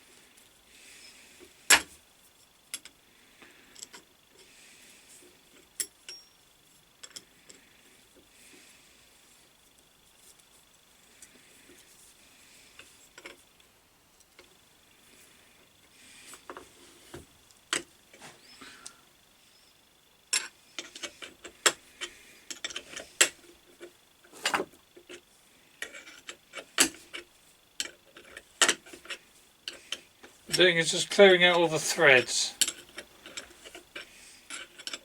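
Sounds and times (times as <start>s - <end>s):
small metal clicks and clinks: 5.8s - 6.4s, 7.0s - 7.6s.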